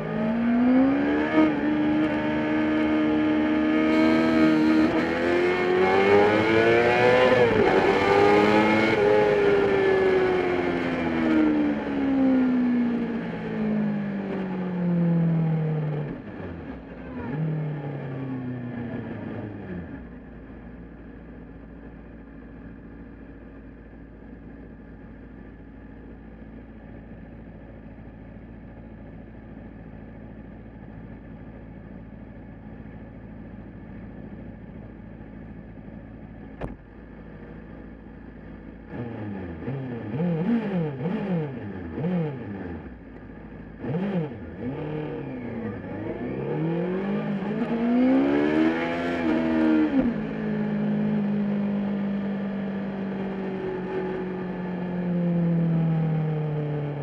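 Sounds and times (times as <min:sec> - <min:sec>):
motorcycle and car engines racing: 0:00.0 - 0:20.2, 0:33.0 - 0:57.0.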